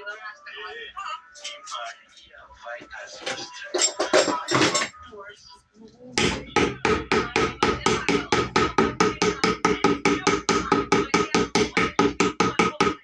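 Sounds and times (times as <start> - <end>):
hammer tapping on metal: 6.2 - 13.0.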